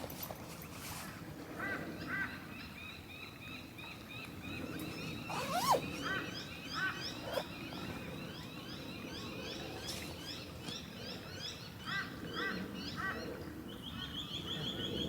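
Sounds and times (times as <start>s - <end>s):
birds chirping: 4.4s - 10.8s
bird calls: 4.5s - 10.8s.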